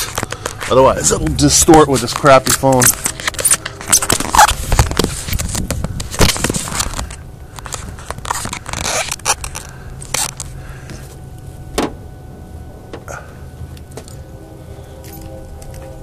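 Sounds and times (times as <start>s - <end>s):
phone being handled: 0.0s - 0.8s, 2.0s - 10.5s
car engine idling: 0.0s - 16.0s.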